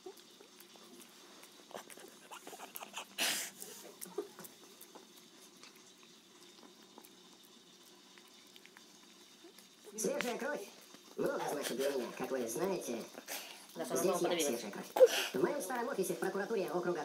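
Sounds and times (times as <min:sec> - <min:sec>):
dog chewing wet clicks: 0:00.0 - 0:14.2
dog puff of breath: 0:02.8 - 0:03.9, 0:15.0 - 0:15.4.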